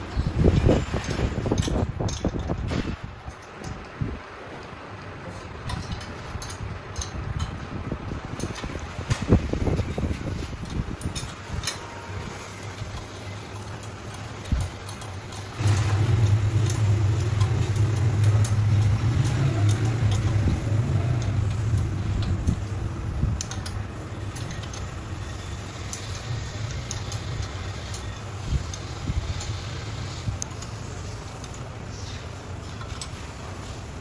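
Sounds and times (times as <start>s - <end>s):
machine humming: 9.0s - 32.8s.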